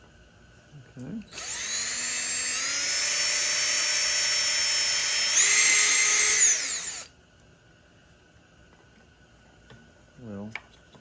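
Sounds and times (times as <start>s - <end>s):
electric drill boring into plastic: 1.3s - 7.1s.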